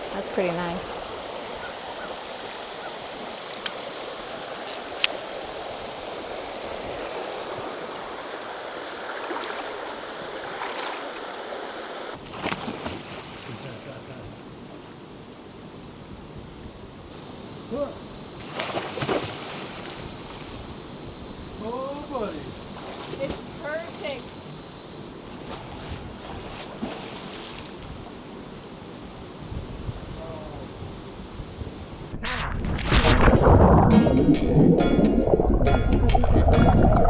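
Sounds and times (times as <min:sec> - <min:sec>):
water running over rocks: 0:00.0 - 0:14.0, 0:18.4 - 0:20.9, 0:21.6 - 0:28.4
water splashes: 0:00.0 - 0:14.4, 0:18.3 - 0:28.7.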